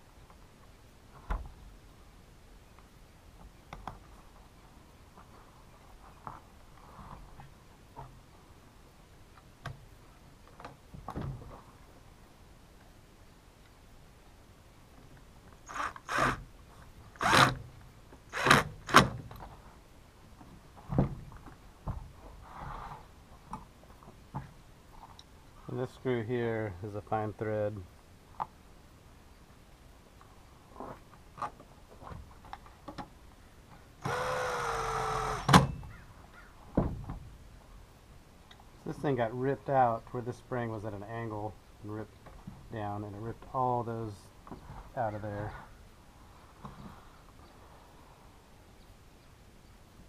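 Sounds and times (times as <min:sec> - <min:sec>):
cordless screwdriver motor running: 0:34.0 - 0:35.6.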